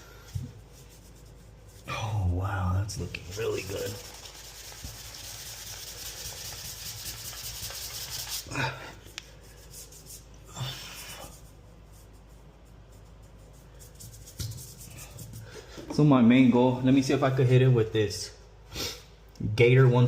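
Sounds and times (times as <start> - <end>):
sanding sponge rubbing: 0.6 - 2.0, 2.8 - 8.5, 9.3 - 15.5.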